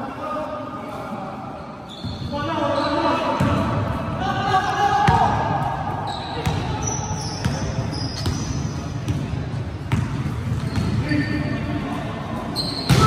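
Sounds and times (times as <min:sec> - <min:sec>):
sneaker squeaks: 0:01.7 - 0:03.6, 0:06.0 - 0:09.3, 0:09.9 - 0:11.6, 0:12.4 - 0:13.0.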